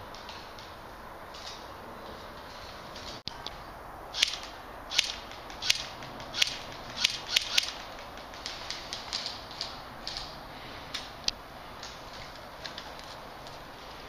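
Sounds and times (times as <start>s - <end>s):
airsoft gun shots: 4.1s - 8.0s.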